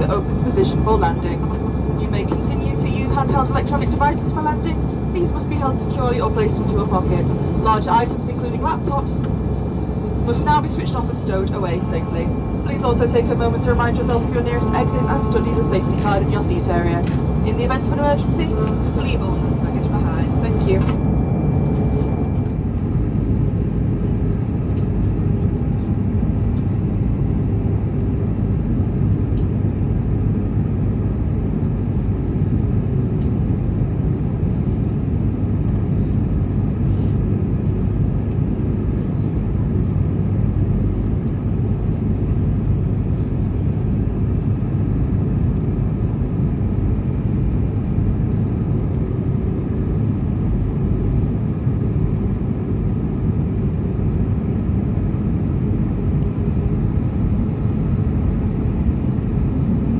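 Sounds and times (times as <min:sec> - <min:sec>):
faint steady hum: 0:00.0 - 0:23.3
jet engines droning: 0:00.0 - 0:59.9.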